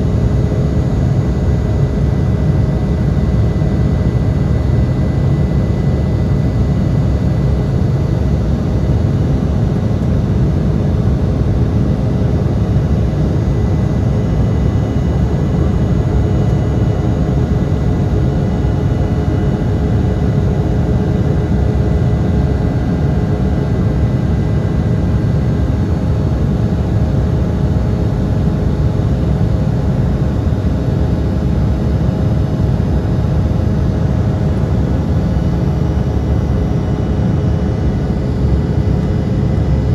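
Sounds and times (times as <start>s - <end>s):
jet engines running: 29.7s - 39.9s.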